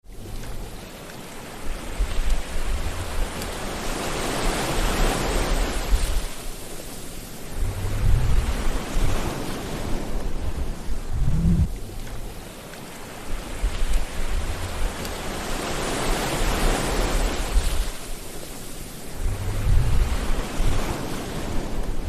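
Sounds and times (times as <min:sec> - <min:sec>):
sea waves breaking on shore: 0:00.0 - 0:22.0
deep rumble: 0:07.5 - 0:09.3, 0:10.1 - 0:12.4, 0:19.2 - 0:20.8.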